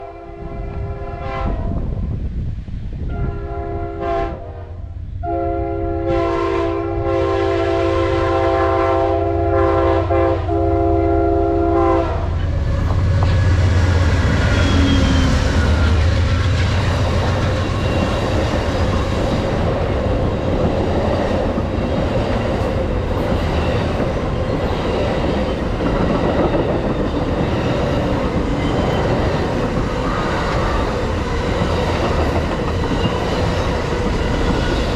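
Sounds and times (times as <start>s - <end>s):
train horn blasts: 0.0s - 1.8s, 3.0s - 20.0s
train roar and wheel clatter: 0.0s - 34.9s
diesel locomotive rumble: 6.9s - 34.9s.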